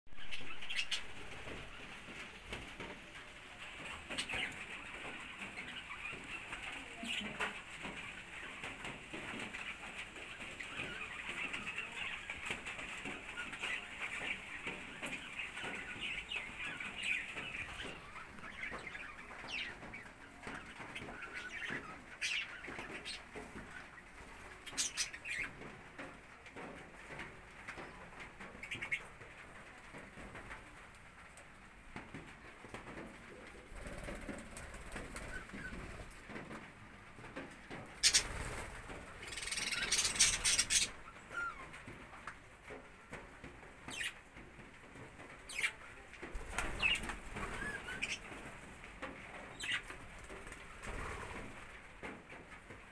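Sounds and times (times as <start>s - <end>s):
budgerigars chattering and chirping: 0.2s - 1.5s, 24.7s - 25.5s, 38.0s - 38.4s, 39.2s - 41.6s, 46.8s - 48.3s, 49.5s - 49.9s.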